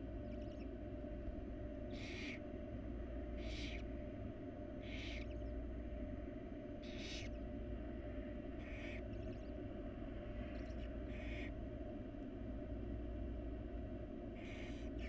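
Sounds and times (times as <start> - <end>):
steady low hum: 0.0 - 15.0
owl nestlings hissing: 1.9 - 2.4, 3.4 - 3.9, 4.8 - 5.5, 6.8 - 7.4, 8.6 - 9.5, 10.5 - 11.5, 14.4 - 15.0.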